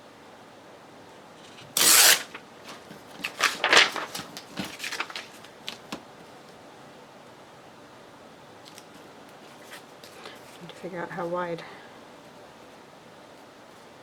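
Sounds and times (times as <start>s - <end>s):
paper rustling: 1.4s - 6.0s.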